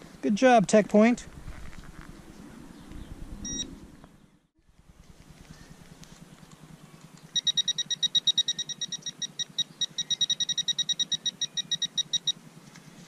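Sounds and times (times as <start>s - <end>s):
metal detector beeping rapidly: 3.4s - 3.7s, 7.3s - 12.4s.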